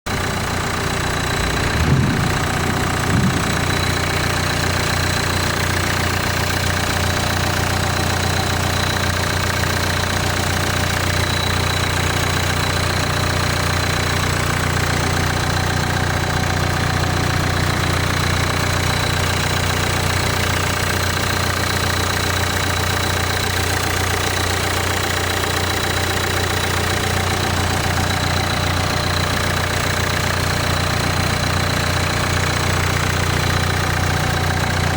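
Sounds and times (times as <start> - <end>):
engine bumps: 0.1 - 9.1
diesel engine idling with knock: 0.1 - 34.9.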